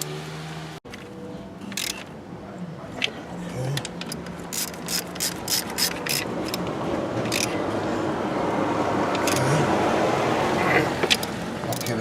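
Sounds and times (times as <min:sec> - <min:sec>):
ratchet wrench clicking: 0:01.7 - 0:02.0, 0:03.8 - 0:07.6, 0:09.1 - 0:09.5, 0:11.0 - 0:12.0.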